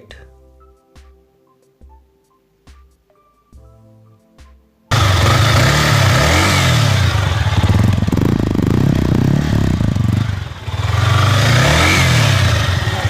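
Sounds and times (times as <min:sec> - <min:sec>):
motorcycle engine revving: 0:04.9 - 0:13.0.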